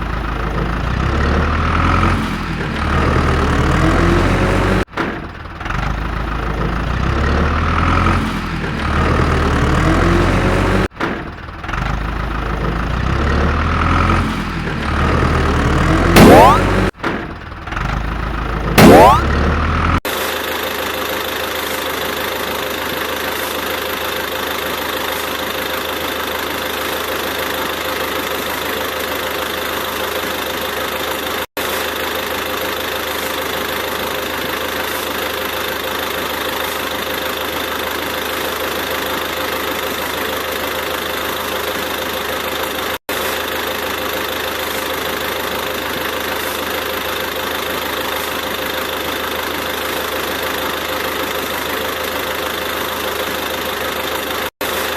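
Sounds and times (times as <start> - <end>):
engine-like drone: 0.0 - 4.9.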